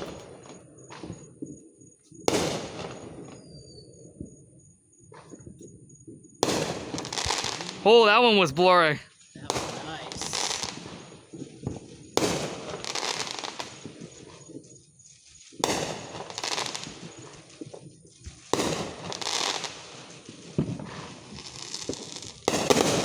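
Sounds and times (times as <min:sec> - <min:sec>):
fireworks crackling: 0:02.2 - 0:03.5, 0:06.4 - 0:23.0
fireworks bangs: 0:02.2 - 0:03.6, 0:06.4 - 0:14.6, 0:15.5 - 0:17.8, 0:18.4 - 0:23.0
small firework pop: 0:02.3 - 0:03.4, 0:15.6 - 0:16.5.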